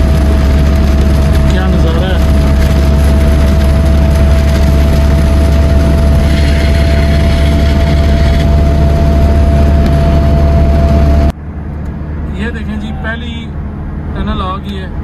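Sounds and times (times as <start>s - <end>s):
heavy rain on a car: 0.0s - 11.3s
low road rumble: 0.0s - 15.0s
thin steady whine: 5.1s - 13.6s.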